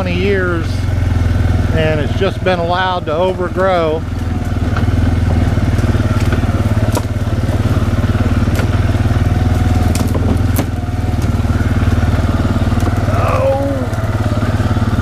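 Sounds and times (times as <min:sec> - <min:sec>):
loader engine droning: 0:00.0 - 0:15.0
branches cracking in cutter: 0:04.1 - 0:14.7.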